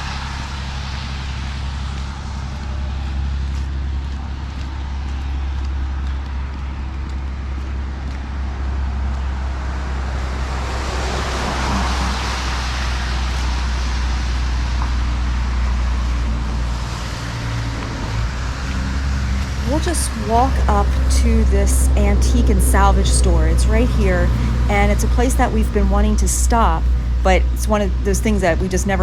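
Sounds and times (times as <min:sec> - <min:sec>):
car tyres hissing on wet road: 0:00.0 - 0:04.4, 0:10.0 - 0:19.8.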